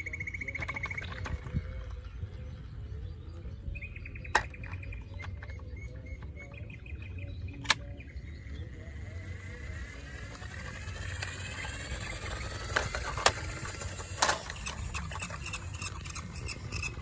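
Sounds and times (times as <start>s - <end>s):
bird chirping in trills: 0.0s - 13.9s
sharp clicks: 7.6s - 8.0s.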